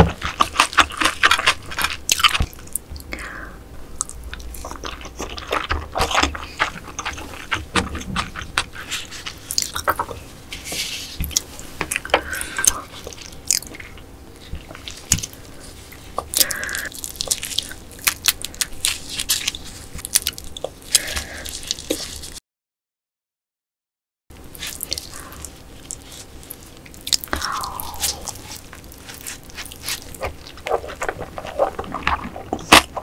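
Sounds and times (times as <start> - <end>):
chewing with wet mouth clicks: 4.0 - 10.2, 16.2 - 22.4, 24.6 - 33.0.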